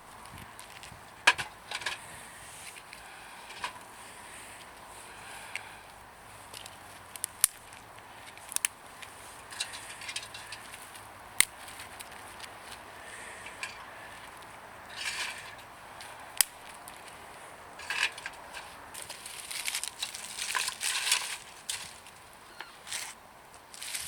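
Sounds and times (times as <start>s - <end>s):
scraping rustle: 6.3s - 24.0s
metal clinks and knocks: 9.4s - 10.8s, 17.8s - 22.0s.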